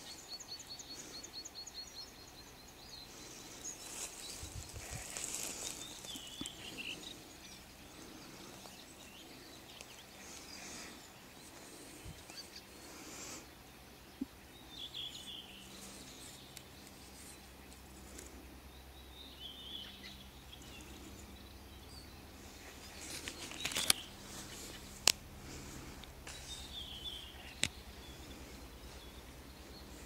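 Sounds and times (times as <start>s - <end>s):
songbirds singing: 0.0s - 30.0s
brief rustle: 23.0s - 25.2s.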